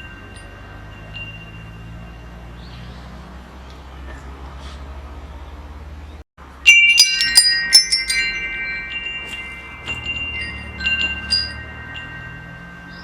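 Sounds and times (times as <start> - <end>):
metal wind chimes ringing: 0.0 - 3.4, 6.4 - 13.0.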